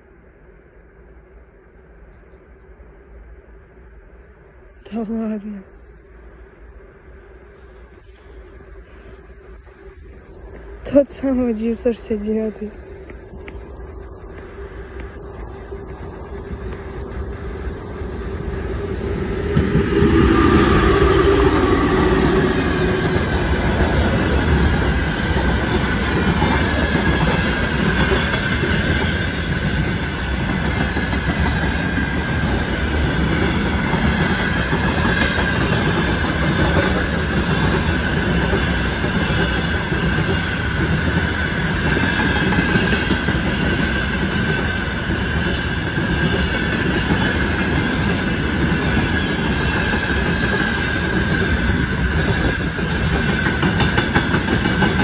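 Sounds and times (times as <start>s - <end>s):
faint high whine: 0.0s - 31.0s
electric locomotive passing: 0.0s - 55.0s
wheels rumbling and rattling on rail: 0.0s - 55.0s.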